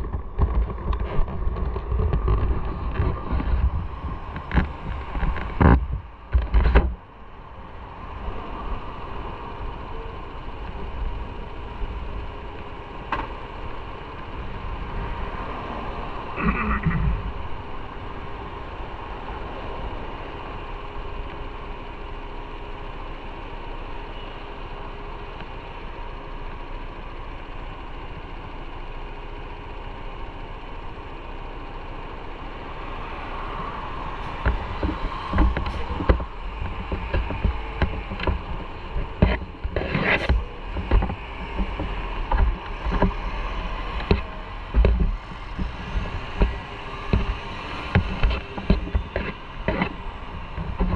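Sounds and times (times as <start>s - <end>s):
wind rumbling on microphone: 0.0s - 21.2s, 32.5s - 50.9s
motorcycle engine running: 0.0s - 50.9s.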